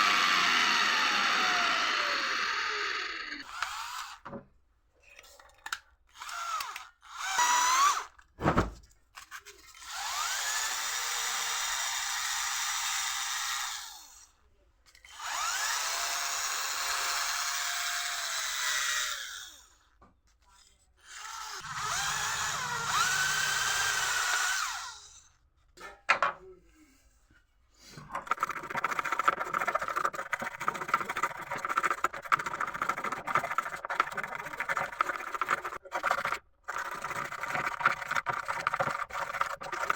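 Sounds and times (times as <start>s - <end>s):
small power tool spinning: 0.0s - 4.2s, 6.1s - 8.2s, 9.7s - 14.2s, 15.1s - 19.8s, 21.0s - 25.3s, 28.2s - 39.9s
scratchy rasping: 28.0s - 39.9s.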